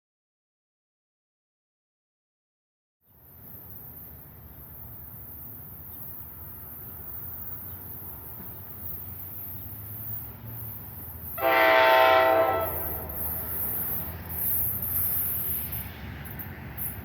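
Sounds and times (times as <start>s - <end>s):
low rumble of train: 3.1s - 17.0s
locomotive air horn blast: 11.3s - 14.2s.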